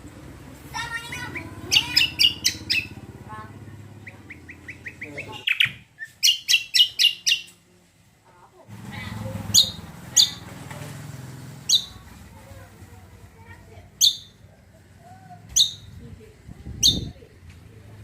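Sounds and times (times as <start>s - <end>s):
songbird sharp high chirps: 1.1s - 3.0s, 4.0s - 7.6s, 11.7s - 12.0s, 14.0s - 14.4s, 15.5s - 16.0s, 16.8s - 17.2s.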